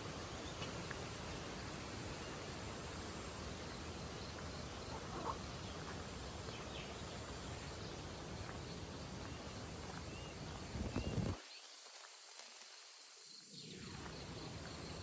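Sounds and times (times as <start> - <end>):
outdoor ambient hiss: 0.0 - 15.0.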